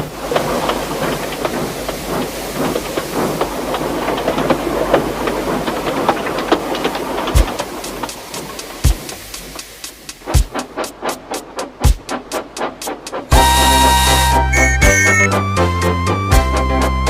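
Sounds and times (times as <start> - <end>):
wheels clattering on track: 0.0 - 13.5
steam hiss: 0.0 - 15.2.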